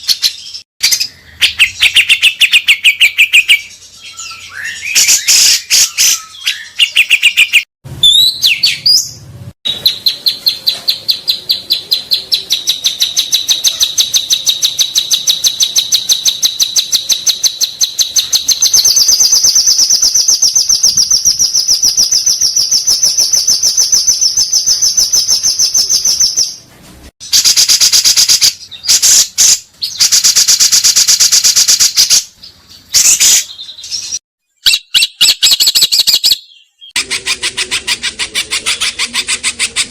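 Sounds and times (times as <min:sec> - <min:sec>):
songbird singing rapid high notes: 0:00.0 - 0:26.6.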